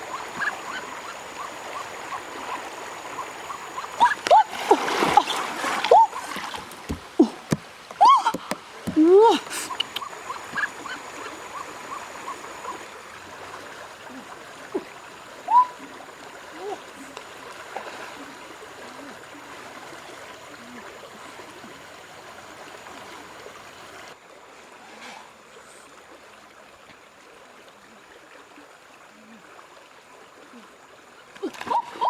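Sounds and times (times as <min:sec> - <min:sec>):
water splashing: 0:00.0 - 0:21.8, 0:30.4 - 0:32.0
river water flowing: 0:00.0 - 0:32.0.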